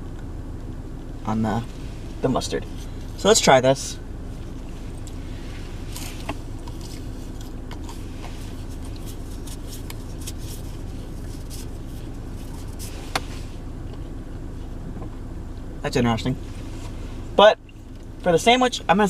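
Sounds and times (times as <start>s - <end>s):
car cabin engine hum: 0.0s - 19.0s
person chewing food: 5.8s - 12.8s.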